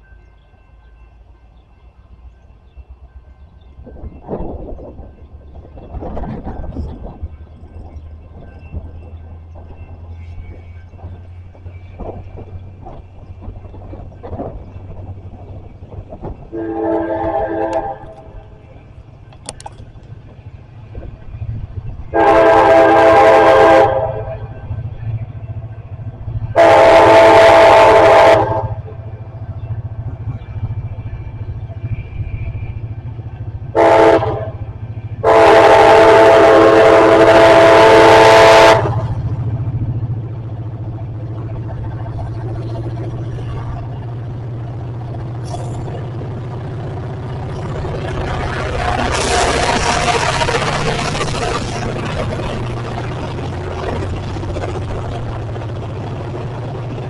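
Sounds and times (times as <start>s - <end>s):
low rumble of passing train: 0.0s - 57.0s
train air horn blasts: 16.5s - 18.4s, 22.1s - 24.6s, 26.5s - 28.8s, 33.7s - 34.6s, 35.2s - 39.2s.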